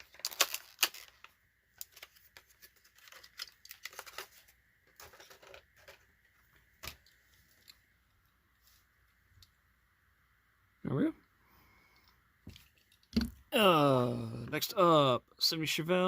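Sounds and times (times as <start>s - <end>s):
plastic packaging crinkling and tearing: 0.0s - 6.0s.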